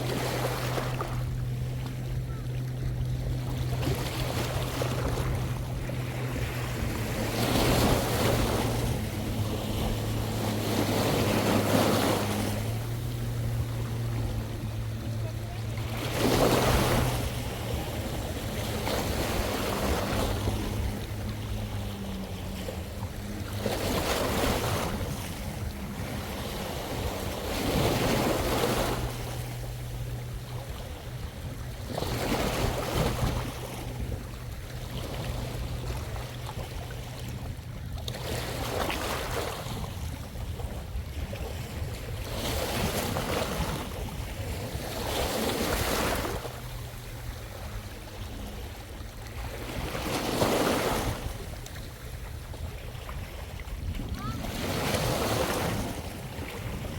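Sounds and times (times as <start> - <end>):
steady low hum: 0.0 - 38.8
sea waves washing onto shore: 0.0 - 56.9.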